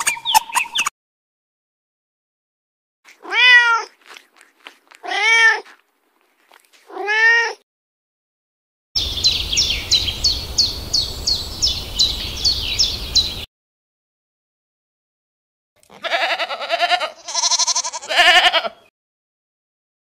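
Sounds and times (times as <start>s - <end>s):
cat meowing: 3.1s - 4.0s, 5.0s - 5.8s, 6.9s - 7.6s, 16.0s - 18.7s
high downward-sweeping chirps: 9.0s - 13.5s.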